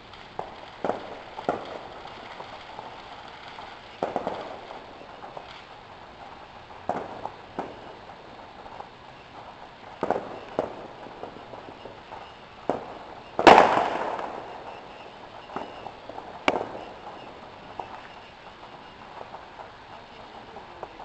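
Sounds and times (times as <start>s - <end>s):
fireworks bangs: 0.0s - 21.0s
loud rumbling firework boom: 10.0s - 19.0s.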